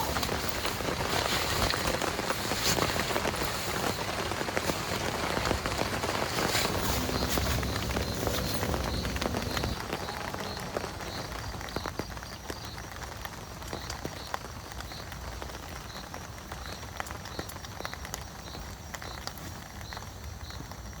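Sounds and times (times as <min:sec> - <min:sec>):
raindrops ticking on surfaces: 0:00.0 - 0:21.0
steady rain falling: 0:00.0 - 0:21.0.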